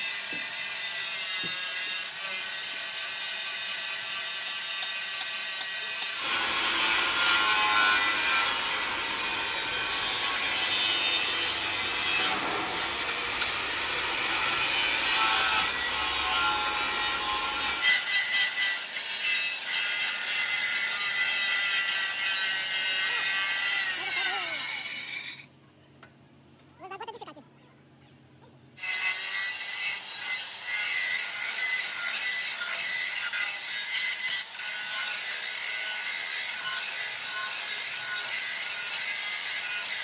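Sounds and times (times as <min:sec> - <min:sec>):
tool sawing through steel: 0:00.0 - 0:25.5, 0:28.8 - 0:40.0.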